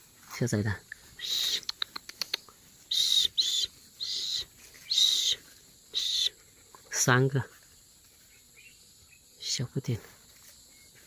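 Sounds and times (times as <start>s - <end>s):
nestling birds begging calls: 0.9s - 9.7s.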